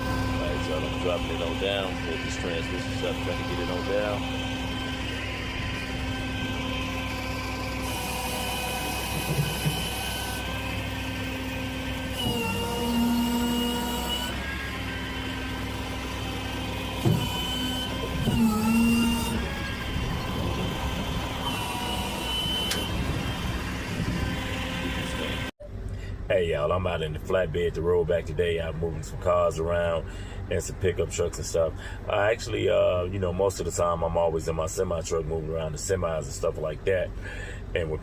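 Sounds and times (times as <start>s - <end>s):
truck engine running: 0.0s - 38.0s
thump: 17.0s - 17.3s.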